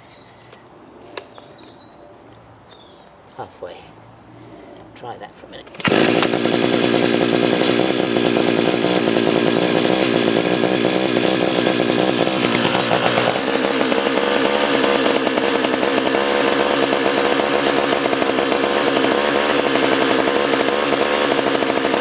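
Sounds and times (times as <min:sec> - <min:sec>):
chainsaw engine running: 0:05.6 - 0:22.0.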